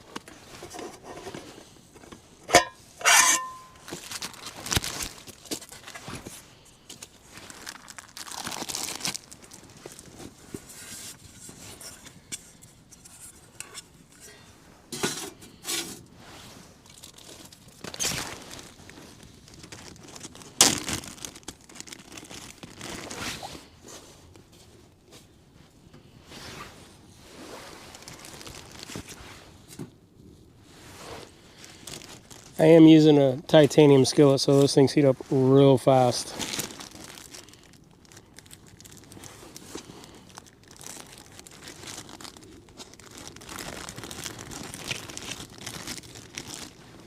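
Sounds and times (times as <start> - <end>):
metal pans and utensils clinking: 2.5 - 3.8
packaging crinkling: 2.5 - 10.7, 16.8 - 23.2, 27.9 - 29.2, 31.5 - 32.6, 35.8 - 47.0.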